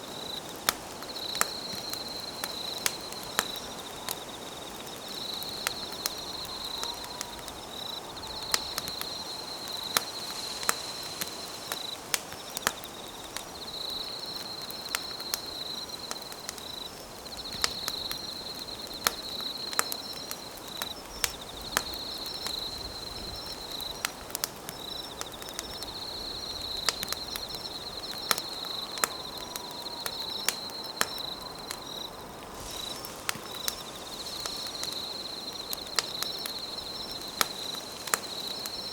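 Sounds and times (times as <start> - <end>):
campfire crackling and popping: 0.0 - 38.9
insect trilling: 24.7 - 38.9.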